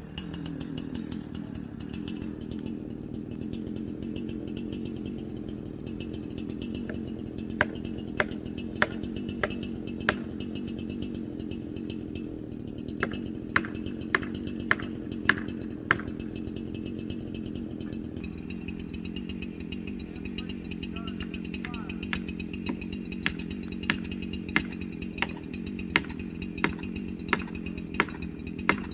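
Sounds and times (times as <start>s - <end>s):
chainsaw idling: 0.0s - 28.9s
sharp knocks: 6.9s - 10.5s, 13.0s - 16.4s, 21.0s - 28.9s.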